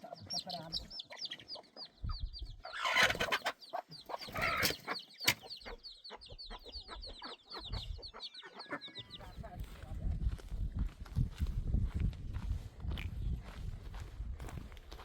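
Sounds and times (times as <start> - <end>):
chickens clucking and peeping: 0.0 - 10.5.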